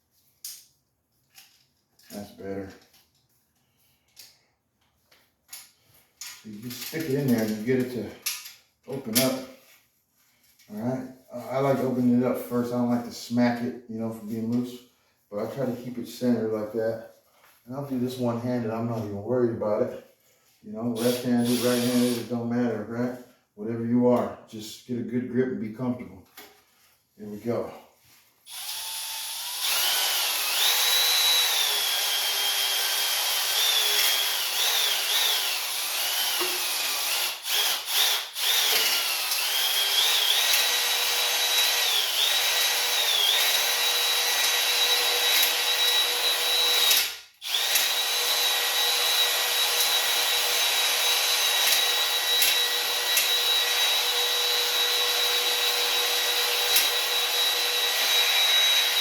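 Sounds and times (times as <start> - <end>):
electric drill whine: 21.0 - 22.2, 28.5 - 59.0.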